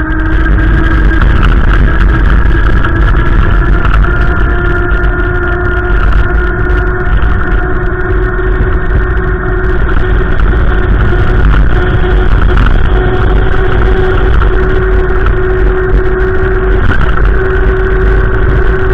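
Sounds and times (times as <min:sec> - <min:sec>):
steady droning hum: 0:00.0 - 0:18.9
wind buffeting microphone: 0:00.0 - 0:18.9.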